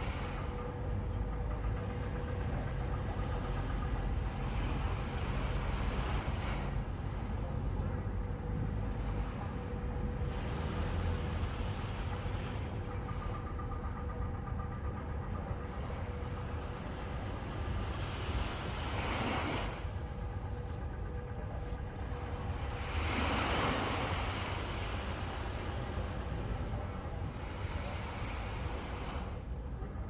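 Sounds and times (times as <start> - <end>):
faint steady hum: 0.0 - 30.0
ocean waves washing in: 15.7 - 30.0.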